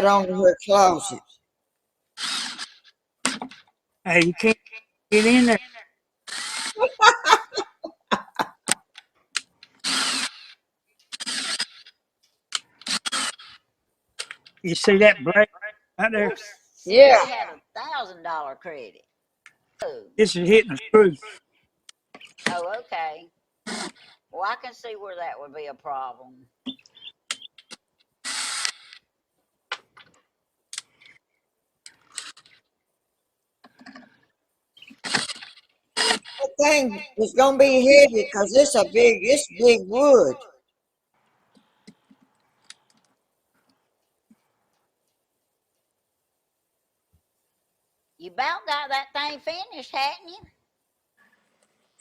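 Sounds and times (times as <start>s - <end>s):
power drill driving screws into wood: 2.2s - 2.7s, 6.3s - 6.8s, 9.8s - 10.5s, 11.1s - 11.8s, 12.9s - 13.6s, 28.2s - 28.8s.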